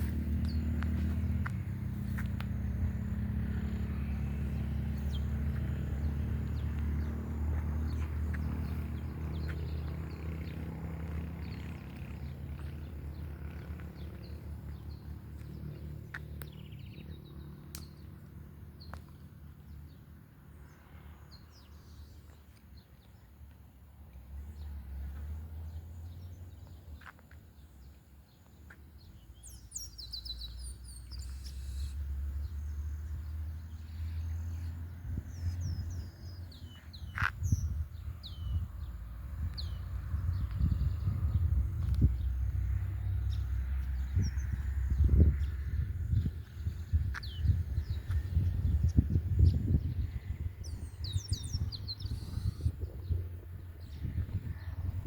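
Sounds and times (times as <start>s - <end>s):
bird chirps: 29.0s - 32.8s, 50.6s - 53.2s.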